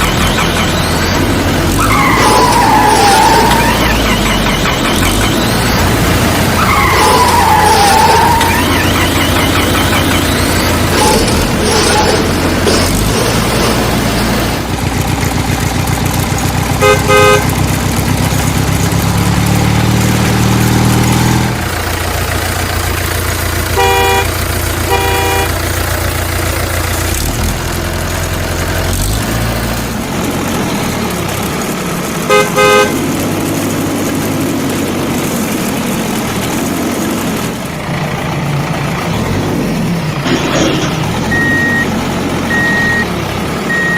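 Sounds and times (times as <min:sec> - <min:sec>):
heavy vehicle engine: 0:00.0 - 0:43.9
short horn honks: 0:16.8 - 0:17.5, 0:23.8 - 0:25.6.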